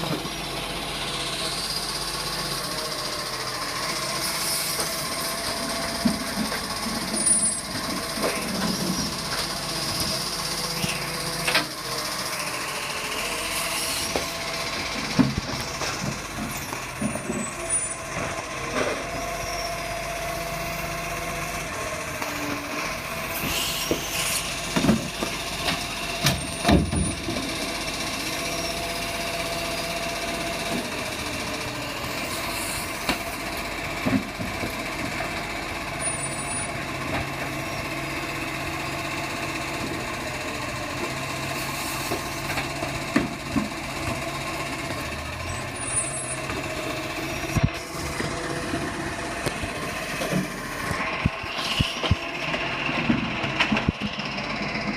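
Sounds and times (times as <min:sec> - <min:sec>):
truck engine running: 0:00.0 - 0:54.9.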